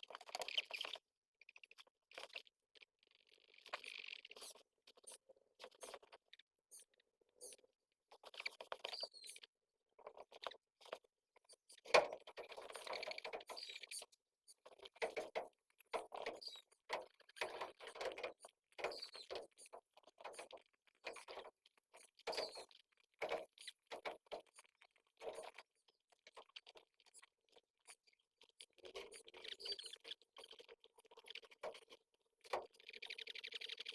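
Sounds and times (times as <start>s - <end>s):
baby pigeons squeaking: 8.3s - 9.4s, 15.0s - 16.7s, 17.4s - 20.5s, 22.2s - 22.7s, 29.0s - 30.1s.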